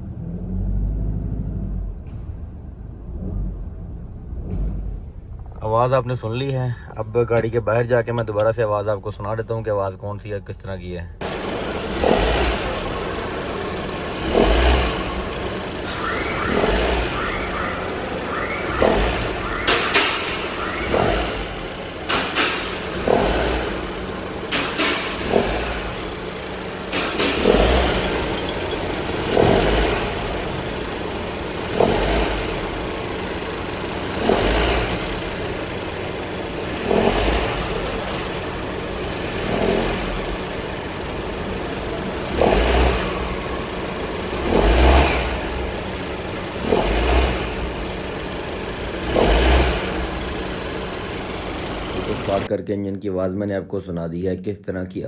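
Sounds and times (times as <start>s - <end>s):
car engine running: 2.0s - 8.9s, 11.2s - 52.5s
belt tensioner grinding rattle: 11.2s - 52.5s.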